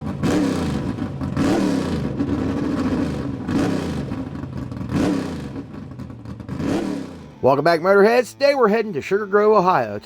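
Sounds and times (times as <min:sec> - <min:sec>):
car engine revving: 0:00.0 - 0:07.5.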